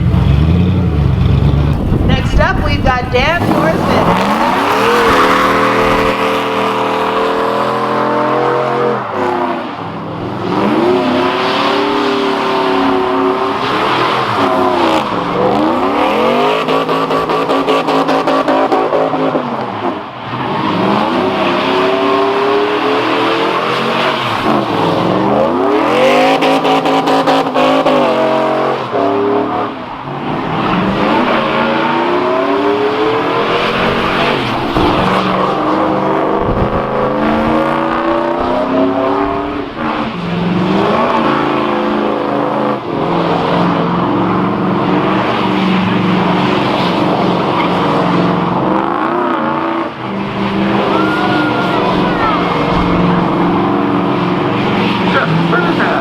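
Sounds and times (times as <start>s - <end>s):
spinning tyres hissing: 0.0s - 8.2s
car engine revving: 0.0s - 56.0s.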